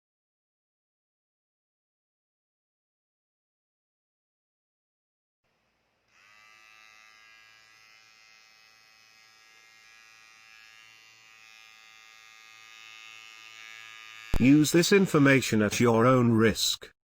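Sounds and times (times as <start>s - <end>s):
electric hair trimmer buzzing: 5.5s - 15.3s.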